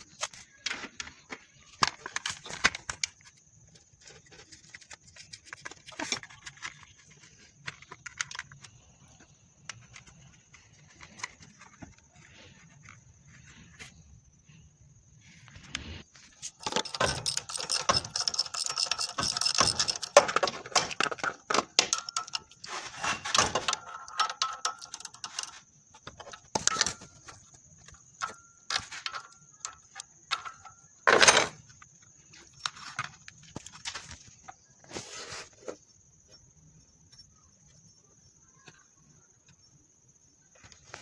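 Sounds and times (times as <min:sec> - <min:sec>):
metal clinking and clattering: 0:16.4 - 0:27.4
metal scrape: 0:21.9 - 0:25.6.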